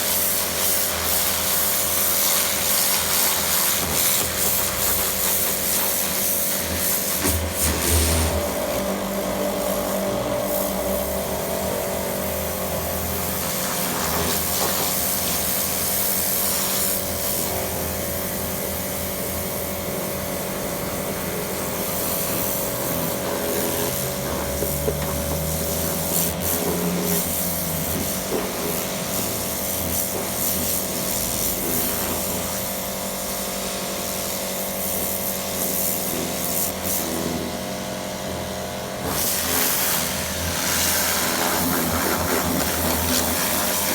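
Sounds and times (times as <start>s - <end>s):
pressure washer spray hiss: 0.0s - 8.8s, 12.1s - 37.4s, 39.0s - 43.9s
pressure washer mechanical hum: 0.0s - 43.9s.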